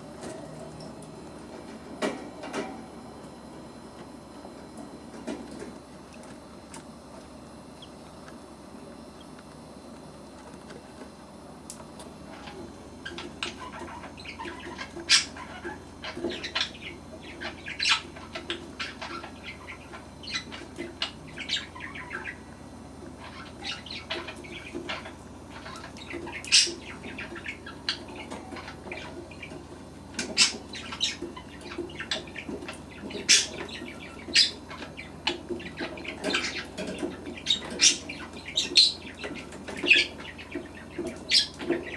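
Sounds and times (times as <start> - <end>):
faint steady hum: 0.0 - 41.9
budgerigars chirping: 12.3 - 22.5, 23.2 - 41.9.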